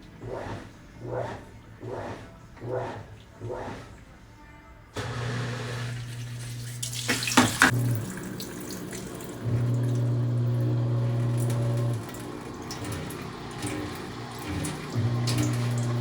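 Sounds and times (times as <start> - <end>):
washing machine motor humming: 0.0 - 4.2, 4.9 - 16.0
water and clothes sloshing: 5.5 - 16.0
sharp water splashes: 6.0 - 16.0.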